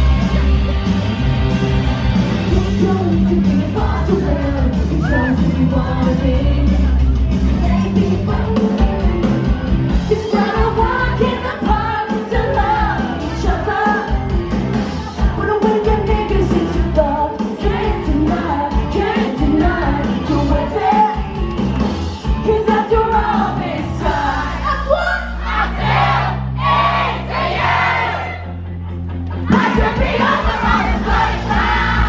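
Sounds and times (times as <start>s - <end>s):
pop band backing: 0.0s - 32.0s
woman singing: 2.5s - 8.9s, 10.1s - 14.2s, 15.1s - 21.3s, 22.3s - 25.4s.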